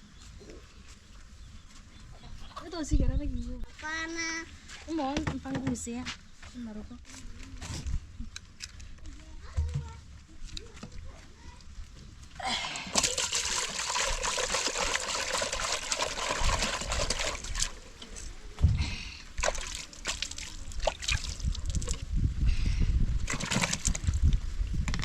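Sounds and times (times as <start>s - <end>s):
water splashing and sloshing: 12.6s - 18.6s, 19.3s - 22.1s, 23.2s - 24.3s.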